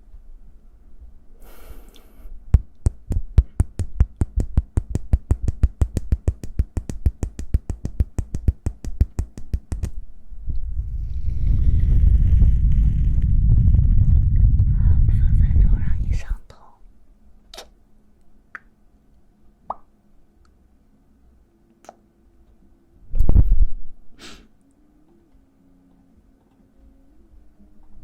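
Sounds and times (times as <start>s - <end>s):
fast sharp hand taps: 2.5s - 10.0s.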